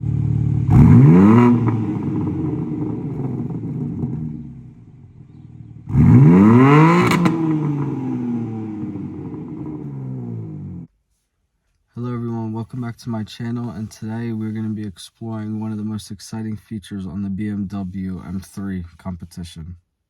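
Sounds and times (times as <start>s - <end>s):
car engine revving: 0.0s - 10.9s
exhaust crack: 0.0s - 10.9s.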